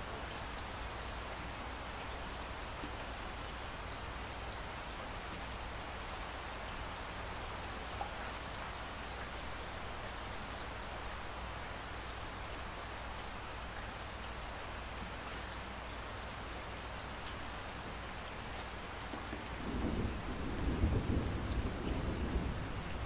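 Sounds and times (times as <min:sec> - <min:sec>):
steady rain hissing: 0:00.0 - 0:23.0
thunder rumbling: 0:19.5 - 0:23.0.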